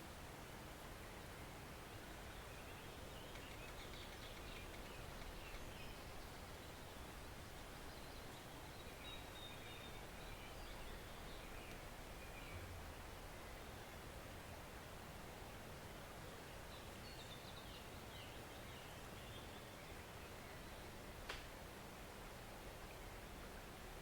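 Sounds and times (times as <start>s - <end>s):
faint high bird calls: 2.4s - 6.3s
stream flowing: 9.9s - 17.0s.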